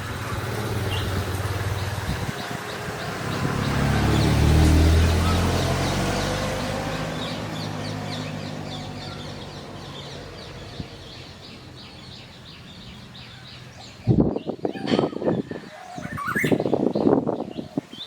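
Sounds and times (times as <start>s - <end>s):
passing motor vehicle hum: 0.0s - 14.4s
bird chirping rapidly: 0.0s - 15.4s, 16.0s - 18.0s.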